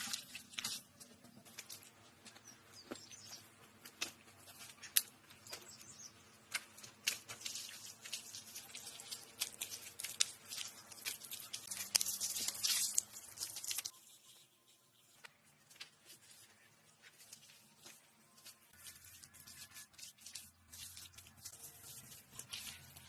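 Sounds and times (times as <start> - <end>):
twigs and leaves rustling: 0.0 - 23.0
twigs snapping: 3.8 - 5.8, 6.4 - 13.9.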